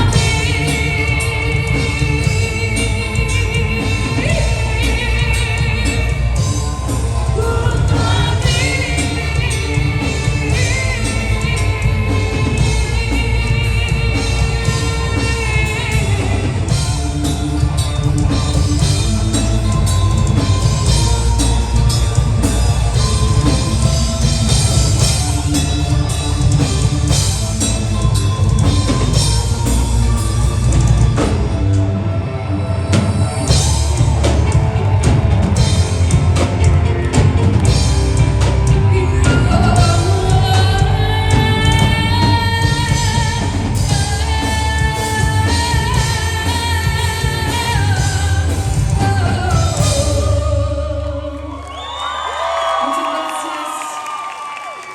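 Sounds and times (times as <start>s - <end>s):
live metal band playing: 0.0s - 50.5s
wavering vocal: 0.0s - 54.0s.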